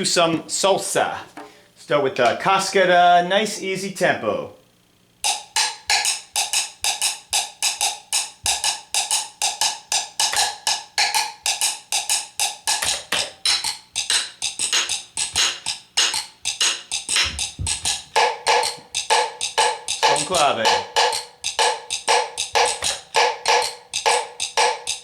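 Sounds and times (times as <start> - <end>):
dry wooden clicks in rhythm: 8.2 - 25.0.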